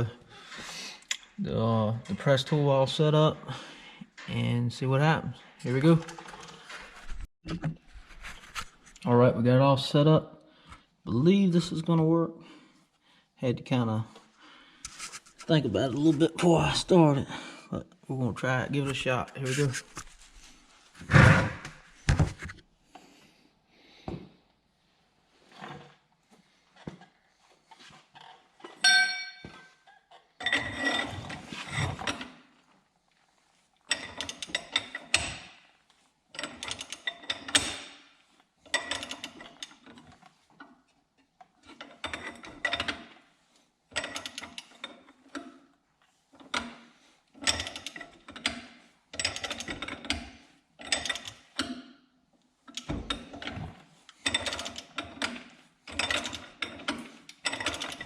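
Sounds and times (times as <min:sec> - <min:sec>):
metal clink: 0:28.8 - 0:29.8.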